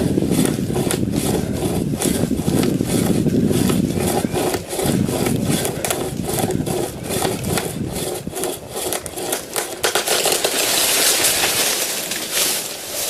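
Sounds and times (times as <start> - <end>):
hand chain saw rasping through wood: 0.0 - 13.0.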